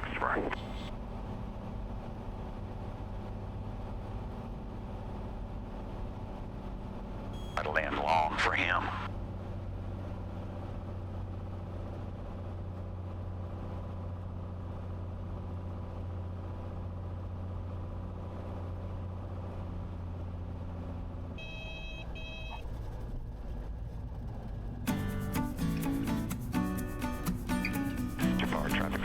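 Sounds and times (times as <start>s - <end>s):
piston aircraft engine drone: 0.0s - 29.0s
two-part electronic beep: 7.4s - 7.8s, 21.4s - 22.6s.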